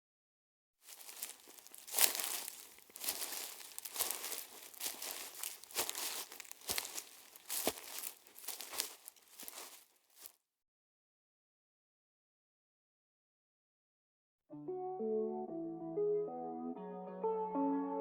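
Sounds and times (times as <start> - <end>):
crackling: 0.9 - 9.9
footsteps on rough path: 0.9 - 10.3.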